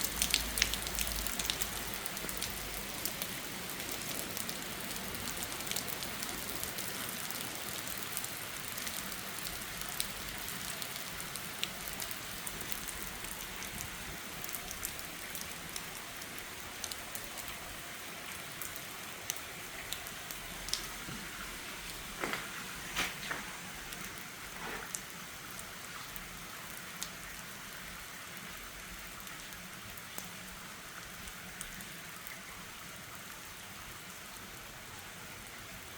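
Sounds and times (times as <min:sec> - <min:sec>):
heavy rain falling: 0:00.0 - 0:27.8.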